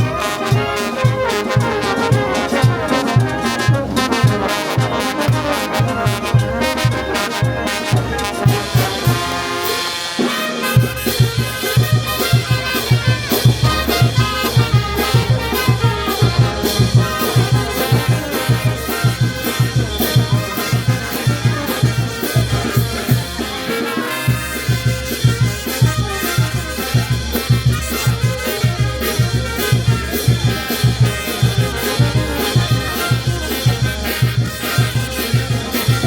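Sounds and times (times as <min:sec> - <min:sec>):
trumpets and trombones: 0:00.0 - 0:36.0
bass drum beat: 0:10.8 - 0:23.7.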